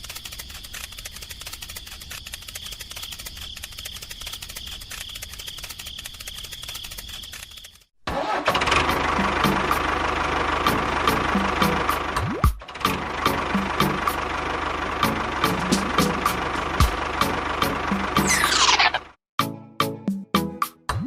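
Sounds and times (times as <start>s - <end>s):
fine ticking: 0.0s - 7.9s
mechanical running with clattering clicks: 0.0s - 7.9s
small electric motor whining: 18.2s - 19.0s.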